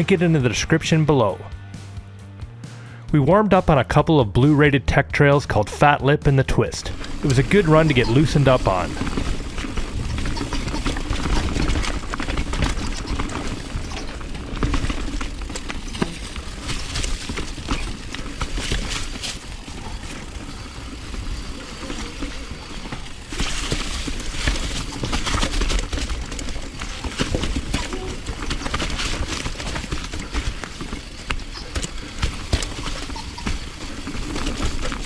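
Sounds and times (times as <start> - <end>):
bike rattling: 5.1 - 35.0
tyres clattering over dirt and rocks: 6.8 - 35.0.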